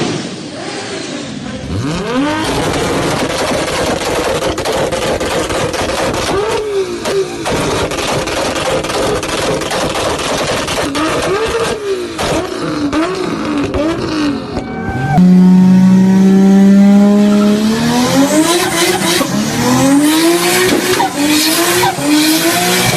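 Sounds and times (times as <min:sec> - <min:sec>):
car engine revving on limiter: 0:01.6 - 0:22.9
exhaust pops and bangs: 0:02.4 - 0:14.6.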